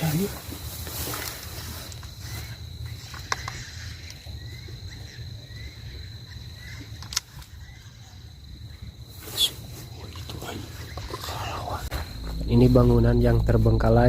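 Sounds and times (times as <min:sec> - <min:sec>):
faint rising chirps: 0:10.4 - 0:14.0
steady low rumble: 0:10.5 - 0:14.0
high-pitched whine: 0:11.2 - 0:14.0.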